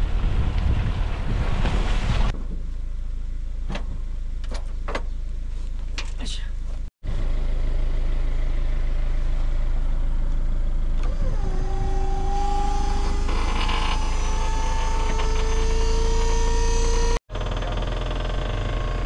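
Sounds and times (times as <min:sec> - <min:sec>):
truck engine rumbling: 0:00.0 - 0:19.0
rising whine: 0:07.1 - 0:17.2.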